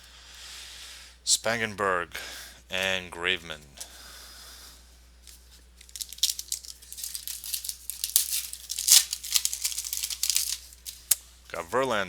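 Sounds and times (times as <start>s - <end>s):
plastic wrapper tearing and crinkling: 5.8s - 11.2s.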